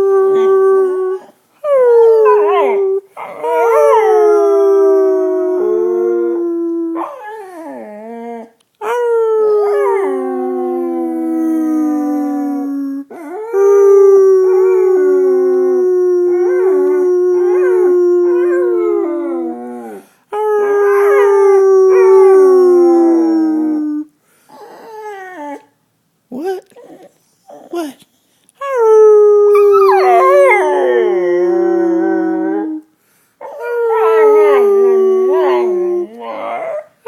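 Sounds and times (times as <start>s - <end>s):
dog howling: 0.0s - 8.1s, 13.5s - 20.0s, 29.5s - 32.8s, 33.5s - 36.9s.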